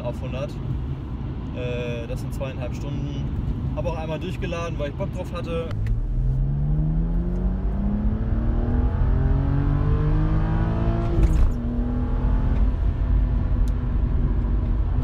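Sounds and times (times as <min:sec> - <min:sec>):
car engine accelerating: 0:05.7 - 0:15.0.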